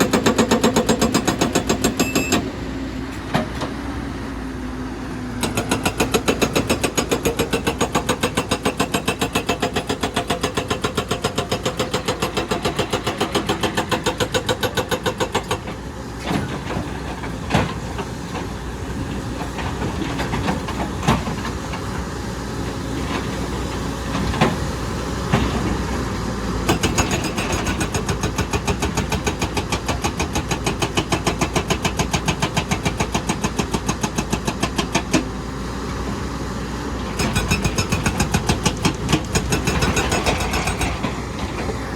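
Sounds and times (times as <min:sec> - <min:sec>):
hydraulic breaker hammering rock: 0:00.0 - 0:02.5, 0:05.4 - 0:15.8, 0:26.6 - 0:35.3, 0:37.2 - 0:41.8
diesel engine running: 0:35.1 - 0:41.9.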